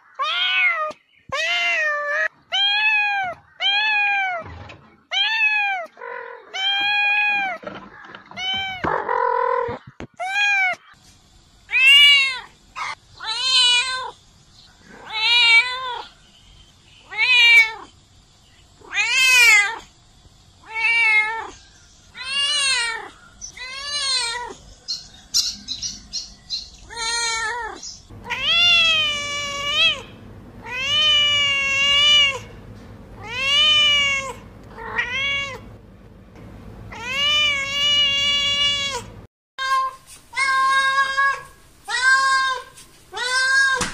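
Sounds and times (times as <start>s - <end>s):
cats meowing: 0.1s - 4.5s, 5.1s - 7.6s, 26.9s - 35.8s, 36.4s - 43.8s
low steady hum: 28.1s - 39.3s.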